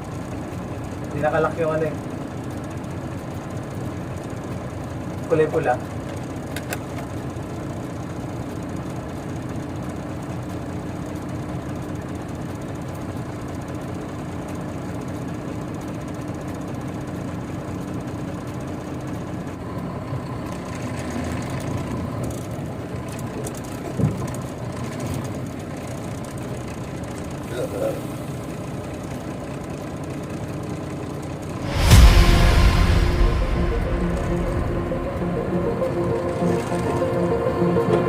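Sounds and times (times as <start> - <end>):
thump: 31.6 - 36.8.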